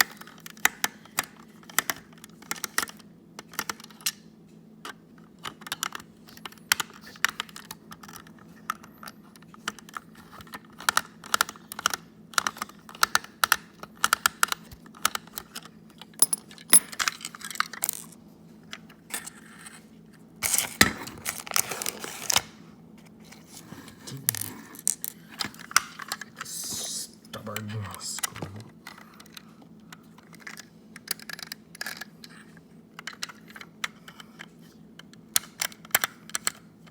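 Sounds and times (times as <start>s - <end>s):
plastic toy parts clicking and rattling: 0.0s - 4.2s, 4.8s - 18.2s, 30.2s - 32.4s, 33.0s - 36.6s.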